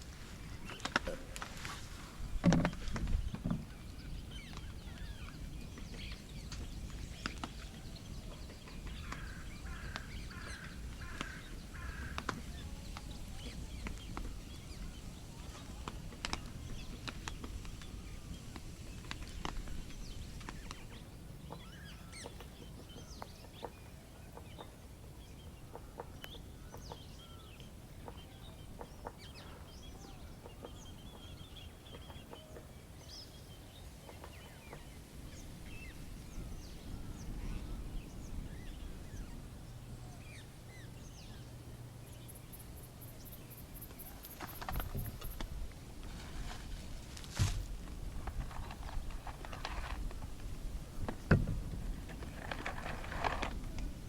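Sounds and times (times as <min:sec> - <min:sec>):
bird calling: 0:00.0 - 0:41.5
campfire crackling and popping: 0:15.6 - 0:20.9.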